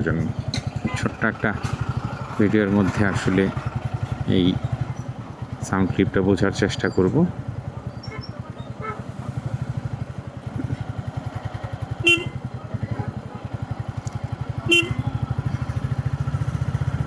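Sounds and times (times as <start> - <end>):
motorcycle engine running: 0.0 - 17.0
horn beeps: 8.0 - 9.2, 12.0 - 12.5, 14.6 - 15.4.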